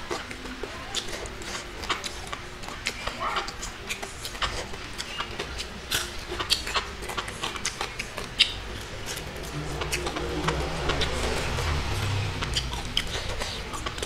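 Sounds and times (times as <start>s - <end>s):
chewing and lip smacking: 0.0s - 14.0s
low hum: 8.5s - 14.0s.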